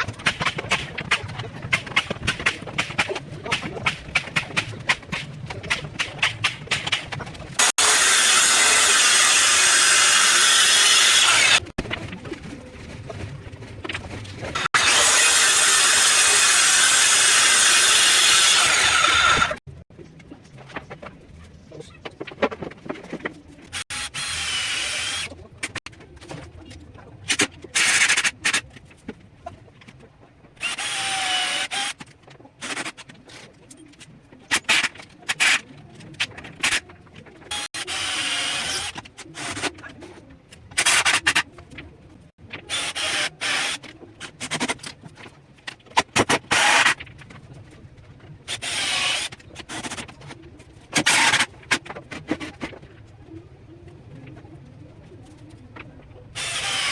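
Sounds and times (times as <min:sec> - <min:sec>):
power tool whine: 0:07.6 - 0:11.7, 0:14.6 - 0:19.6.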